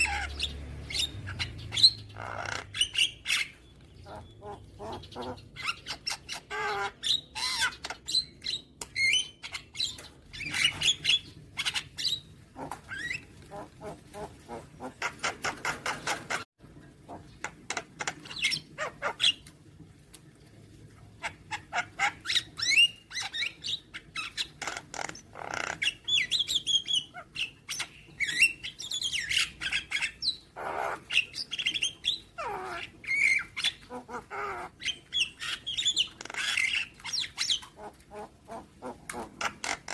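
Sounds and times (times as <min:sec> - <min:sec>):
bird song with squawks and whistles: 0:00.0 - 0:12.3, 0:21.2 - 0:37.7.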